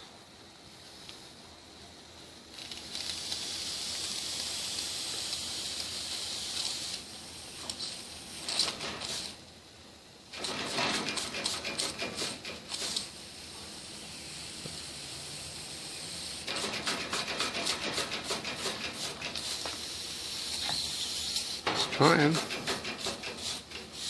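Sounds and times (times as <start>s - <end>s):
toy steam engine hissing: 2.5s - 9.4s, 10.4s - 24.0s
rapid clicking and puffing: 10.4s - 13.1s, 16.4s - 19.8s, 20.7s - 24.0s.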